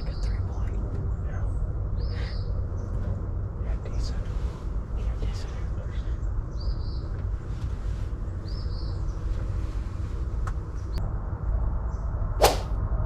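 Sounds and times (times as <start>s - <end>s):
low rumble: 0.0s - 13.0s
bird chirps: 1.4s - 3.0s, 5.4s - 7.2s, 8.4s - 9.4s
sharp knock: 12.4s - 12.8s.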